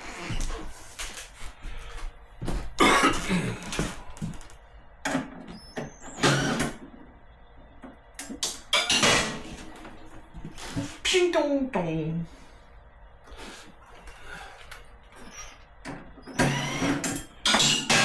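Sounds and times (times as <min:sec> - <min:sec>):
man coughing: 0:02.8 - 0:03.8.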